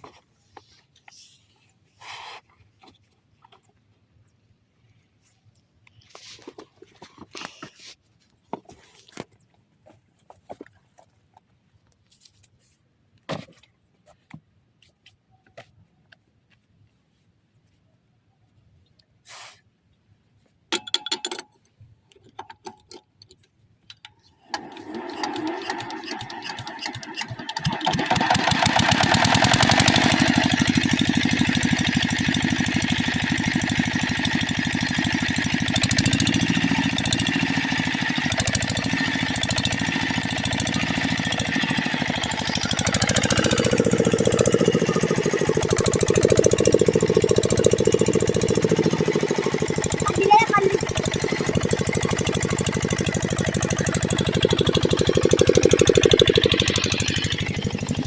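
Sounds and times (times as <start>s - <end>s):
diesel engine knocking: 27.6s - 58.0s.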